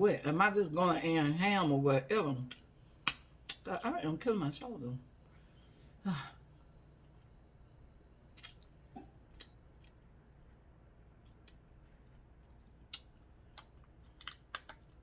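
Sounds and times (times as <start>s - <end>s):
person sighing: 6.0s - 6.4s
crab legs cracking: 12.7s - 15.0s.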